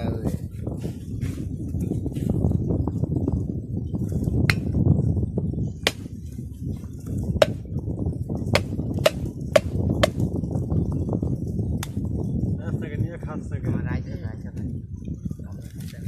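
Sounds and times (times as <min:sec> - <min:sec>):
blade chopping coconut: 0:05.9 - 0:06.1, 0:08.6 - 0:10.2.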